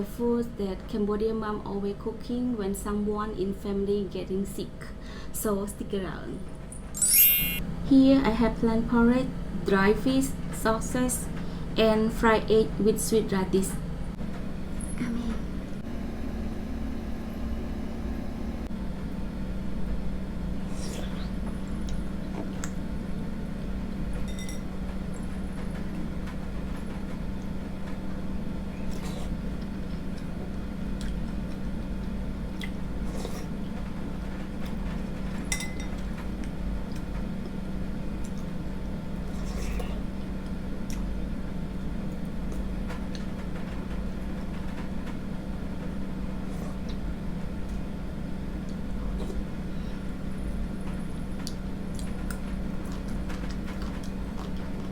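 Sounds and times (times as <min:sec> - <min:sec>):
steady low hum: 0:00.0 - 0:54.9
soft chewing and slurping: 0:20.6 - 0:22.8, 0:28.6 - 0:43.4, 0:46.3 - 0:50.7, 0:51.3 - 0:54.9
spoon clinking against bowl: 0:24.3 - 0:24.6, 0:35.5 - 0:35.9.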